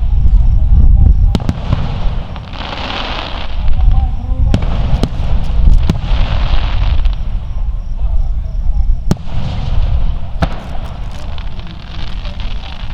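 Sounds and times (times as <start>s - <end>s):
fireworks booming: 0.0s - 12.9s
fireworks crackling hiss: 0.0s - 12.9s
sharp fireworks cracks: 0.0s - 12.9s.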